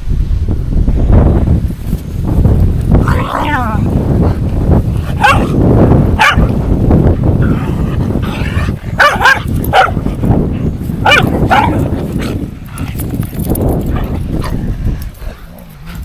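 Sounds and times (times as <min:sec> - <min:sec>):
wind noise on microphone: 0:00.0 - 0:16.0
dog barking: 0:05.2 - 0:05.6, 0:06.2 - 0:06.5, 0:09.0 - 0:10.0, 0:11.0 - 0:11.8.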